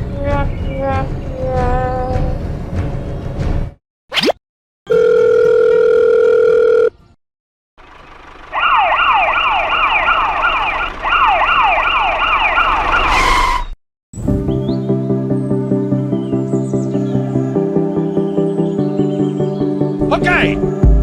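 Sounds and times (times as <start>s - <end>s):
electronic siren rising sweeps: 8.6s - 13.8s.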